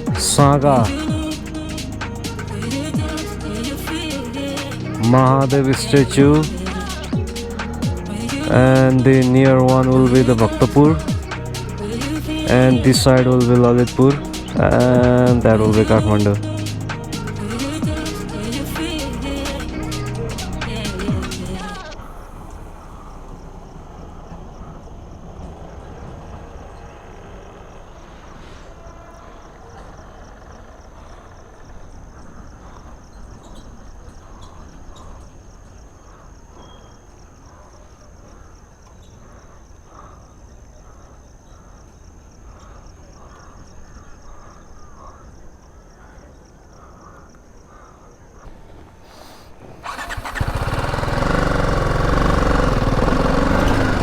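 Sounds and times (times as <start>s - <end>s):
motorcycle engine idling: 0.0s - 23.9s, 48.5s - 54.0s.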